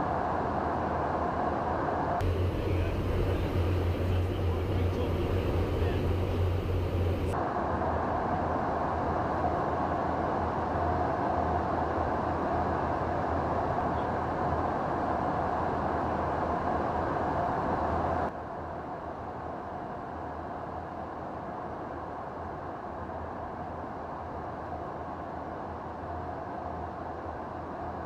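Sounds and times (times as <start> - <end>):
aircraft engine drone: 1.7 - 11.2.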